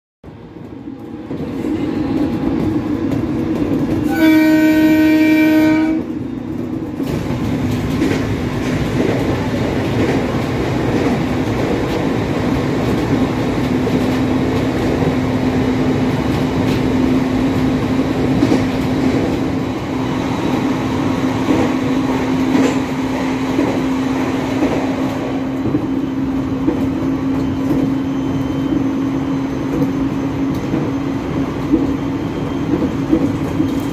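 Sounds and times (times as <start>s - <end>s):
train running noise with hum: 0.2s - 33.9s
train horn: 4.0s - 6.2s.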